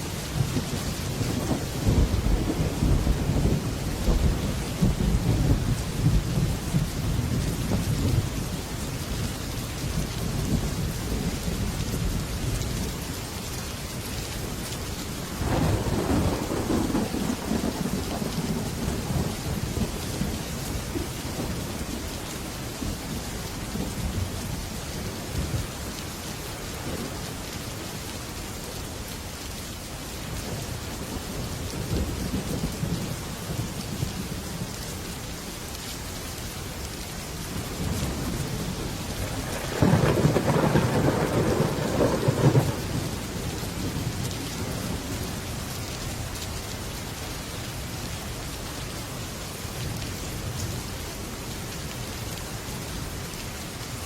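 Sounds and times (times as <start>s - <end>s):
heavy rain on a metal roof: 0.0s - 54.0s
thunder rumbling: 0.1s - 8.4s, 15.4s - 22.1s, 37.7s - 45.8s.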